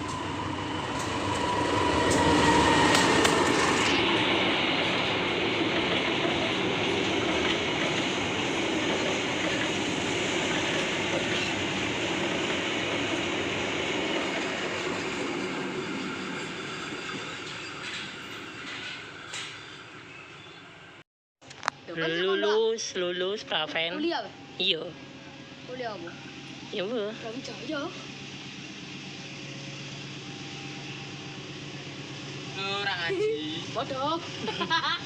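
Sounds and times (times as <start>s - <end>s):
train wagons rolling on rails: 0.0s - 21.0s.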